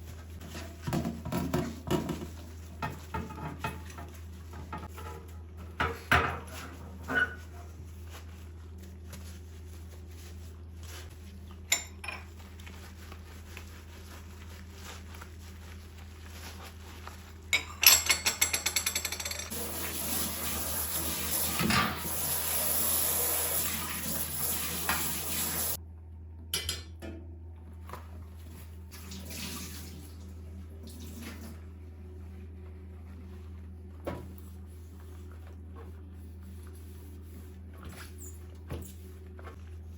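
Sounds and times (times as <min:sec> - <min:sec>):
dishes and cutlery clinking: 0:11.7 - 0:12.4, 0:17.5 - 0:19.6.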